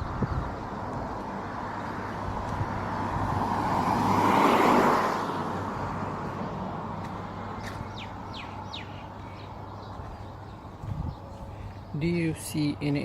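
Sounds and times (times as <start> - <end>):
car passing by: 0.8 - 9.9
bird chirping: 7.6 - 12.7.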